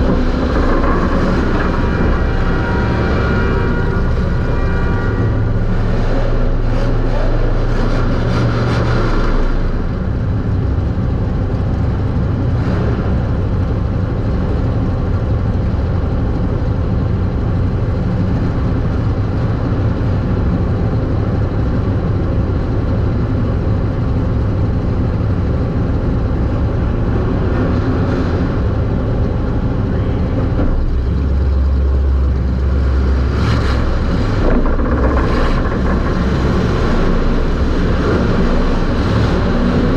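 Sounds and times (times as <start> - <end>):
race car engine droning: 0.0 - 39.9.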